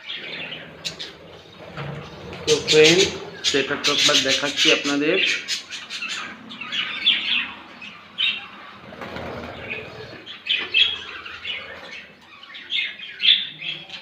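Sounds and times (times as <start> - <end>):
budgerigars chirping: 0.0 - 14.0
wings flapping: 8.8 - 10.2.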